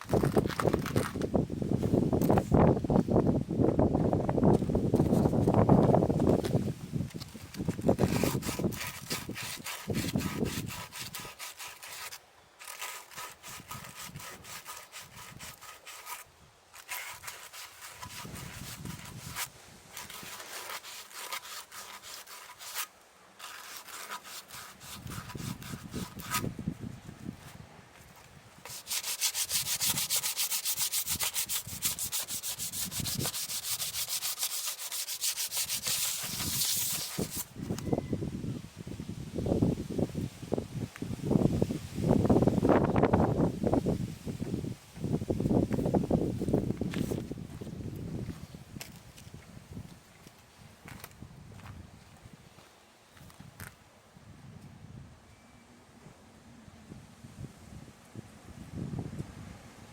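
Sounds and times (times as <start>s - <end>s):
scrubbing strokes: 7.9s - 26.5s, 28.6s - 37.5s.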